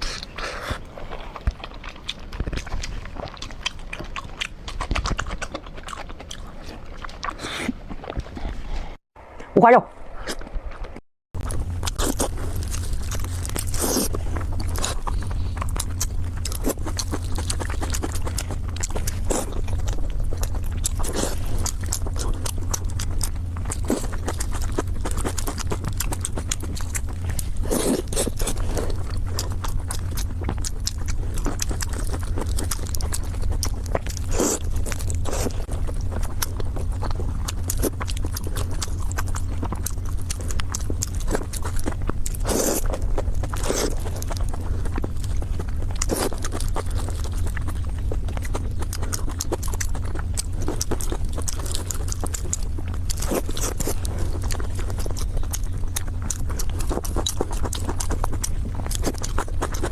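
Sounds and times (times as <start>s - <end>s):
wet mouth smacking and clicking: 0.0s - 7.4s, 46.0s - 59.9s
person chewing: 0.0s - 9.0s, 10.2s - 59.9s
steady low hum: 0.0s - 59.9s.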